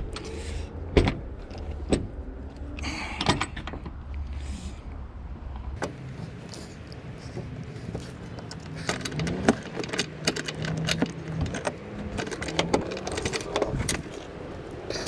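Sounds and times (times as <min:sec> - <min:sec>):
latch clicks and knocks: 0:08.3 - 0:14.3.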